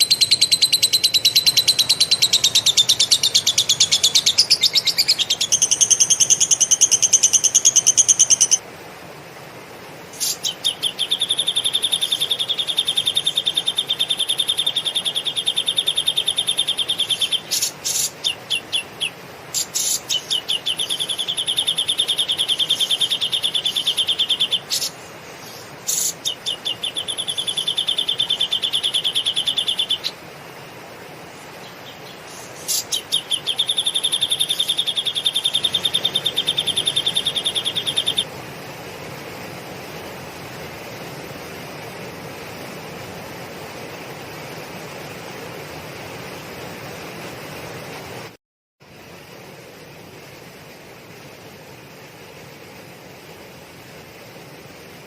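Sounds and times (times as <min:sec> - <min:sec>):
cage bird singing fast trills: 0:00.0 - 0:08.6, 0:10.2 - 0:30.2, 0:31.6 - 0:38.3.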